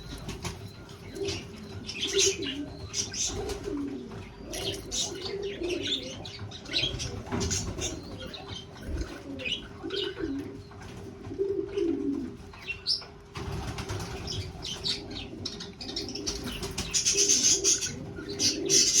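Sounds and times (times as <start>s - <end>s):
low warbling coos: 0.0s - 10.7s.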